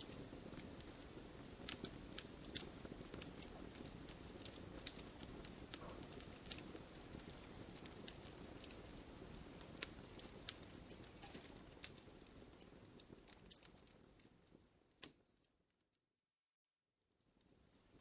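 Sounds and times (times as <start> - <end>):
hiss of flames: 0.0 - 15.3
burning wood popping and snapping: 0.0 - 15.4.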